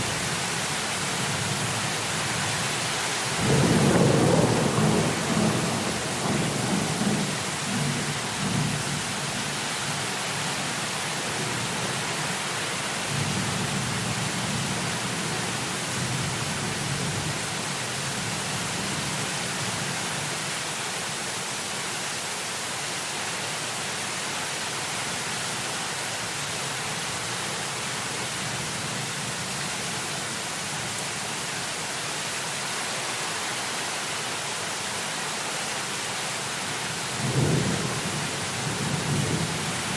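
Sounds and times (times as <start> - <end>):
heavy rain pouring: 0.0 - 39.9
rolling thunder: 3.4 - 8.0.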